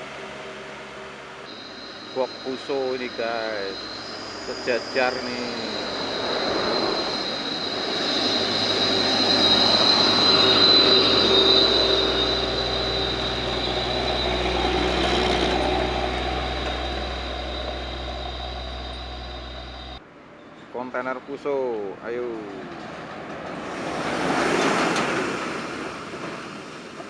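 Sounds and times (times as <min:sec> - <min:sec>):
heavy truck engine rumble: 0:00.0 - 0:20.0
high whine: 0:00.0 - 0:20.0
truck passing close by: 0:05.5 - 0:20.0.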